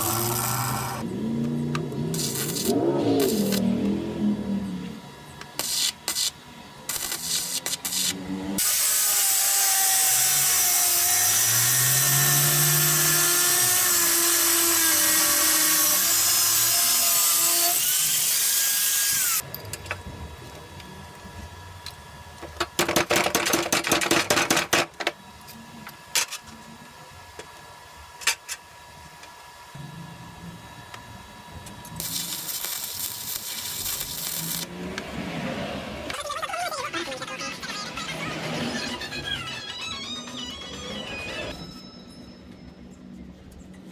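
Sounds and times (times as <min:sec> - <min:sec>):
handheld power tool running: 0:00.0 - 0:01.1, 0:05.6 - 0:19.4, 0:32.0 - 0:34.7.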